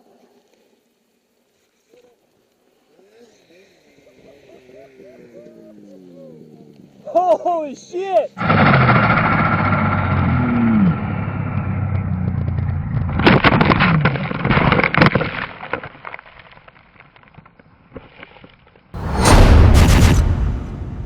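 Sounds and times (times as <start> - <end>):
sharp knocks and cracks: 19.0 - 21.0
sudden loud burst of noise: 19.0 - 21.0.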